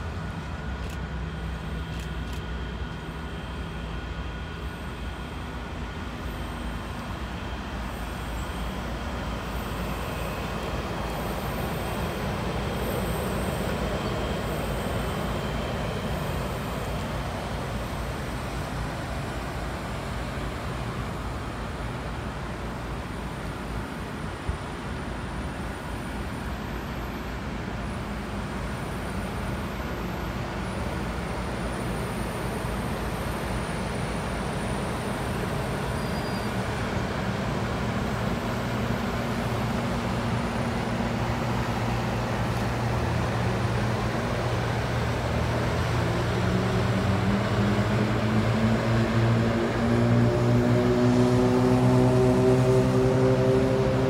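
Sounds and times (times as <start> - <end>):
diesel locomotive engine drone: 0.0 - 54.0
train cars wheel-on-rail rumble: 0.0 - 54.0.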